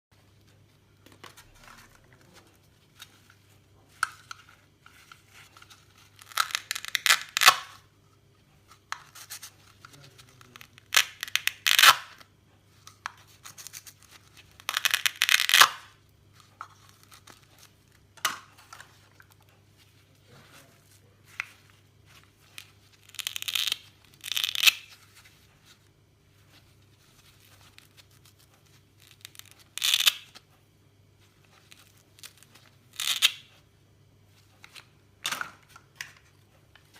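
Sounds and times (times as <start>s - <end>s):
crackly tearing: 5.5s - 7.7s, 9.8s - 12.2s, 13.4s - 16.0s, 22.5s - 25.0s, 29.0s - 30.3s, 31.7s - 33.4s.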